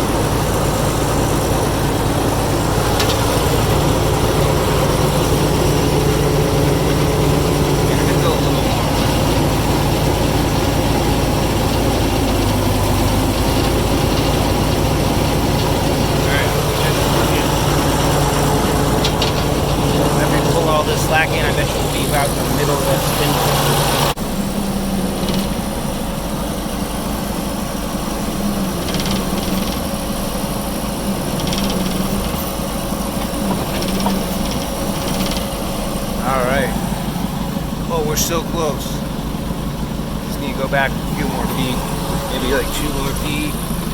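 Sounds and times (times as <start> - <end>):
fast high-pitched rattle: 0.0 - 43.9
heavy diesel engine running: 0.0 - 43.9.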